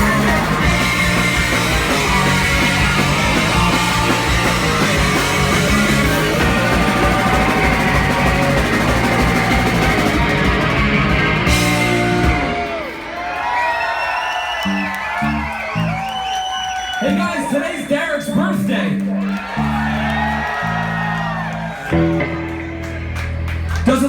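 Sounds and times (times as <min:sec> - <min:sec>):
voices and shouts: 0:00.0 - 0:10.7
punk rock band playing live: 0:00.0 - 0:13.8, 0:18.2 - 0:23.8.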